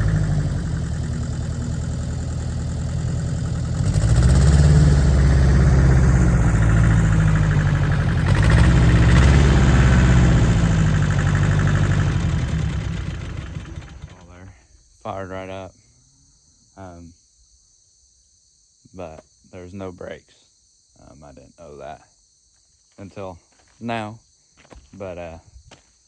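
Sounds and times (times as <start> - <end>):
tractor diesel engine running: 0.0 - 14.4.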